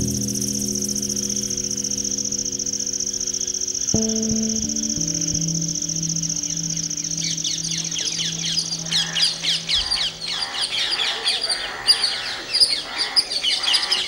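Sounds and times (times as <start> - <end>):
low hum: 0.0 - 11.0
steady high buzz: 0.0 - 11.2
birds chirping and squawking: 5.8 - 14.0.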